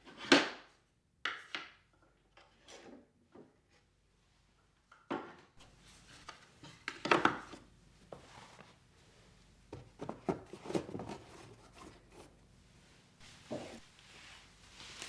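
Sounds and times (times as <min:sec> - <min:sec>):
objects knocking on hard surfaces: 0:09.7 - 0:12.2.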